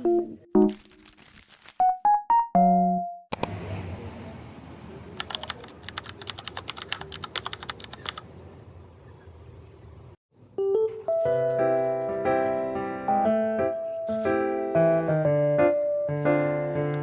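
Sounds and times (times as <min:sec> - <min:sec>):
music: 0:00.0 - 0:00.9, 0:01.8 - 0:03.3, 0:10.6 - 0:17.0.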